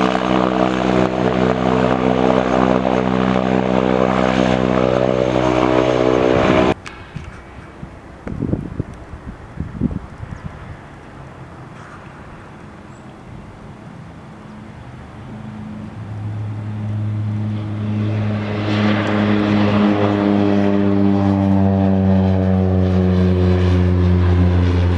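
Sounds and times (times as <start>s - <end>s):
turboprop engine droning: 0.0s - 24.9s.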